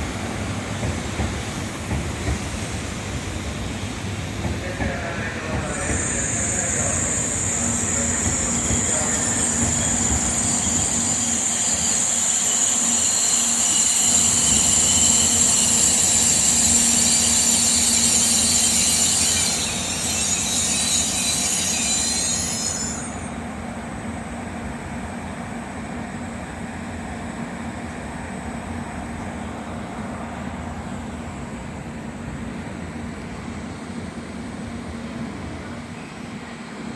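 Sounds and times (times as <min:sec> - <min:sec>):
standing train hum: 0:00.0 - 0:36.9
train brakes squealing: 0:01.4 - 0:24.1.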